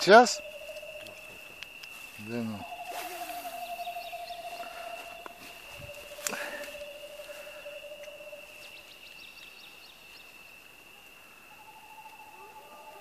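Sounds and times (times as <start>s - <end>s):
steady high-pitched tone: 0.0s - 1.6s, 2.2s - 8.7s, 11.6s - 13.0s
low hum: 2.6s - 8.7s.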